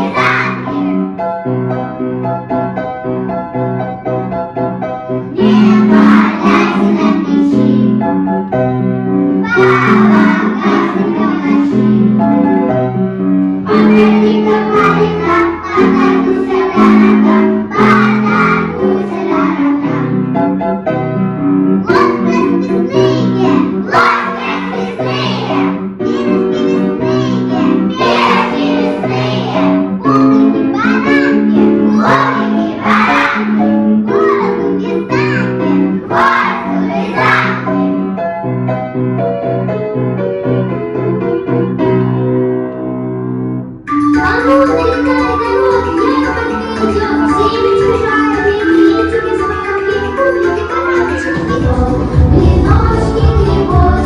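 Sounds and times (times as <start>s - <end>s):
children singing together: 0.0s - 1.0s, 5.3s - 8.0s, 9.4s - 12.2s, 13.6s - 20.2s, 21.8s - 37.9s, 44.2s - 54.0s
keyboard music: 9.3s - 38.3s, 43.6s - 54.0s
instrumental accompaniment: 41.0s - 54.0s.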